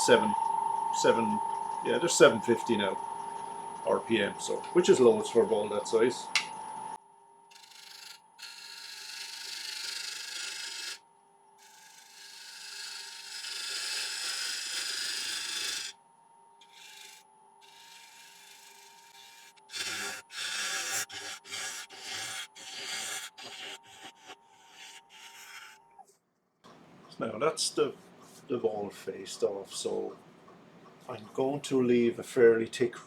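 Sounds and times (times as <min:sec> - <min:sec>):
faint lathe hum: 0:00.0 - 0:26.0
lathe tool cutting wood: 0:07.6 - 0:11.0, 0:11.7 - 0:15.9, 0:16.7 - 0:25.8
wood shavings hissing: 0:16.8 - 0:25.8.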